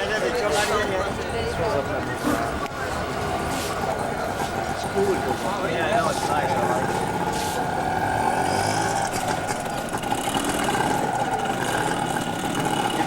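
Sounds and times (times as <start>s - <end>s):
vehicle engine running steadily: 0.0s - 13.0s.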